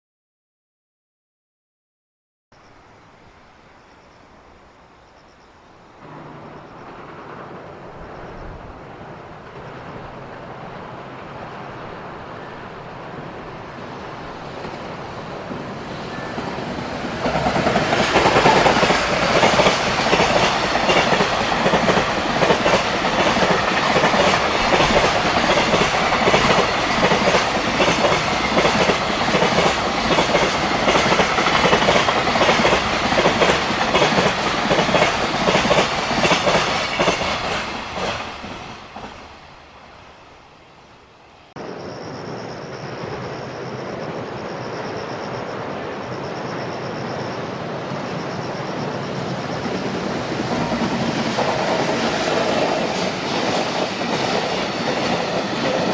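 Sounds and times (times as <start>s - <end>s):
freight train rumbling: 5.8s - 55.9s
wagon wheels clickety-clack: 17.2s - 39.2s.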